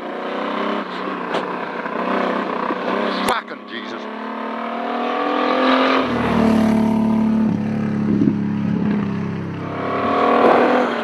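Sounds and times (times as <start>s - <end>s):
truck engine under hard load: 6.0s - 11.0s.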